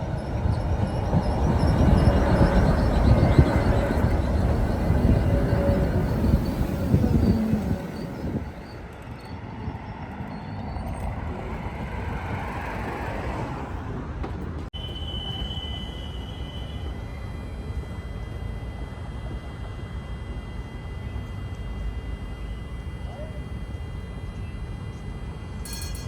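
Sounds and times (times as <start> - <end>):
high squeal: 0.0 - 11.4, 14.8 - 18.0
tram rumbling on rails: 0.0 - 26.0.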